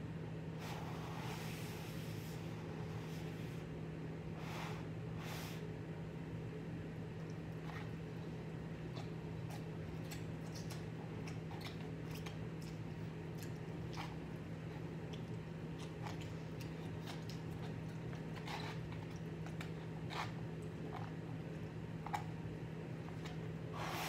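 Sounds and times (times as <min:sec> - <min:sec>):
chewing noodles: 0:07.2 - 0:24.0.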